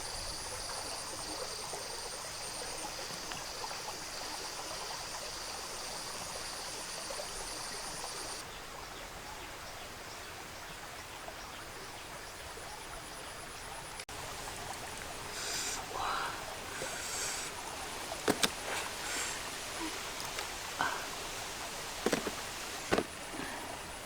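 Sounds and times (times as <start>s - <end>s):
stream water rushing: 14.1s - 24.0s
insect trilling: 14.3s - 23.7s.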